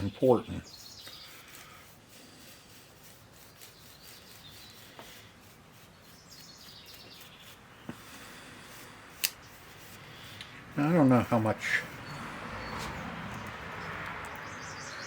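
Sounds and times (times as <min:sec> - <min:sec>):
faint bird chirps: 0:00.0 - 0:01.6, 0:06.0 - 0:08.0.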